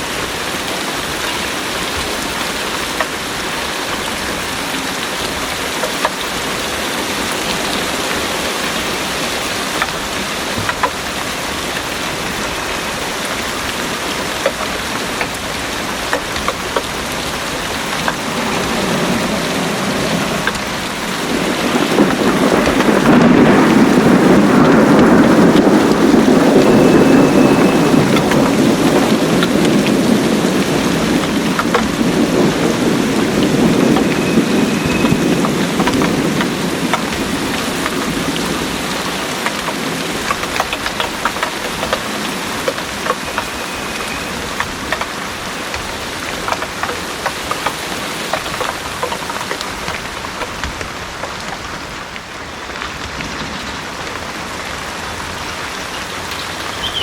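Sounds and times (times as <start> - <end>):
heavy rain pouring: 0.0 - 57.0
rolling thunder: 6.4 - 46.2.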